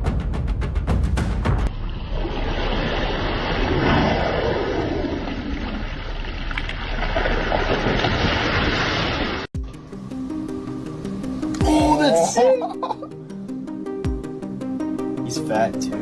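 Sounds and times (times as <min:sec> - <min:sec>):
water rushing: 0:01.7 - 0:09.5.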